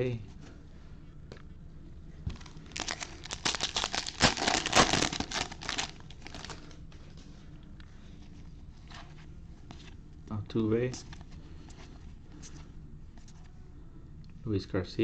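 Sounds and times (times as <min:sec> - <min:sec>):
foil wrapper crinkling and tearing: 0:02.3 - 0:06.6.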